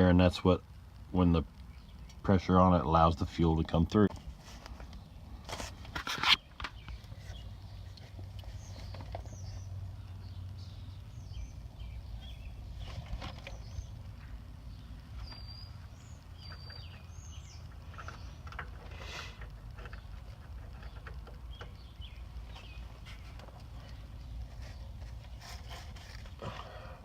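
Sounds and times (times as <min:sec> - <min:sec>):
steady low rumble: 0:00.0 - 0:05.8
small birds chirping: 0:00.0 - 0:27.0.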